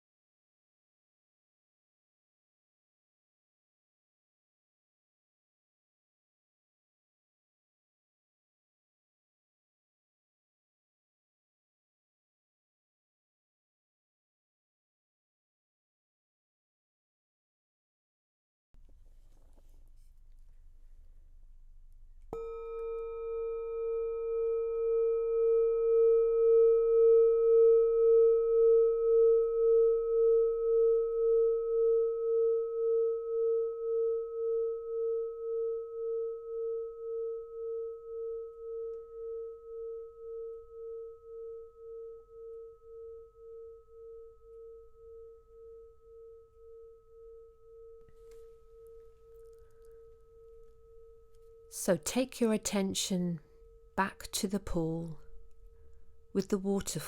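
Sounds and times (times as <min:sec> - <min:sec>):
singing bowl ringing: 0:22.3 - 0:51.8, 0:53.4 - 0:54.0.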